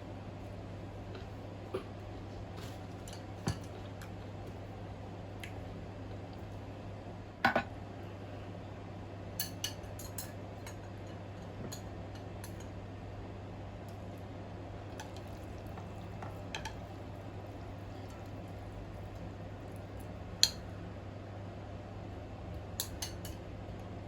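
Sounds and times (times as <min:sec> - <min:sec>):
cutlery clinking against bowl: 0:09.4 - 0:12.7, 0:22.8 - 0:23.4.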